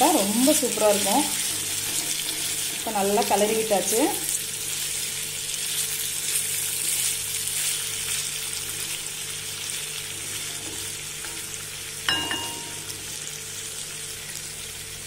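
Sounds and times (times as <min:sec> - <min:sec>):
potatoes sizzling in oil: 0:00.0 - 0:15.0
spatula stirring: 0:00.4 - 0:03.5.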